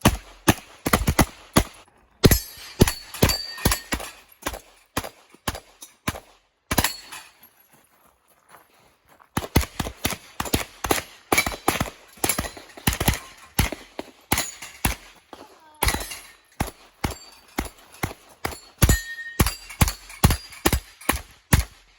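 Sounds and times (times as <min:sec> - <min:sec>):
semi-automatic gunfire: 0:00.0 - 0:04.1.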